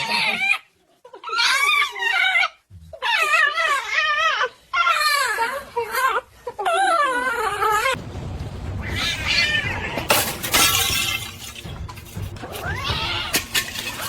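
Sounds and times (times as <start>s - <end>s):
clattering with sharp crashes: 8.0s - 14.0s.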